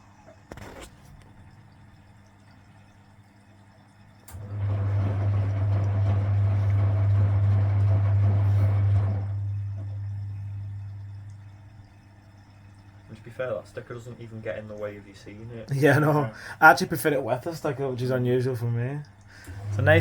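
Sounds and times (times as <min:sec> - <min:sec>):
washing machine motor humming: 0:01.4 - 0:20.0
water and laundry sloshing: 0:04.2 - 0:20.0.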